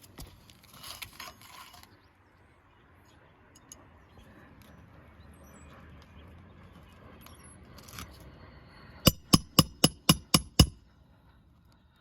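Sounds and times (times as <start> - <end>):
hammer driving nail: 9.1 - 10.8.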